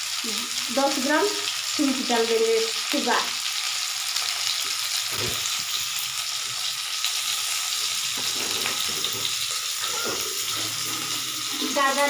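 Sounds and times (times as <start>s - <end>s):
carrot sizzling in a pan: 0.0s - 12.0s
spatula scraping a pan: 8.2s - 12.0s.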